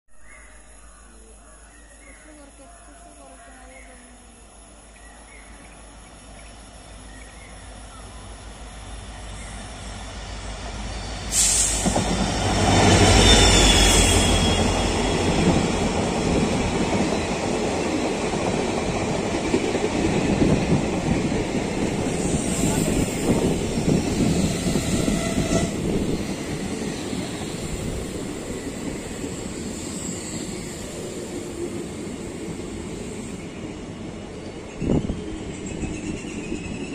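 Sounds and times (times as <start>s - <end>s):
passenger train passing: 3.1s - 36.9s
train coaches rattling: 7.7s - 36.9s.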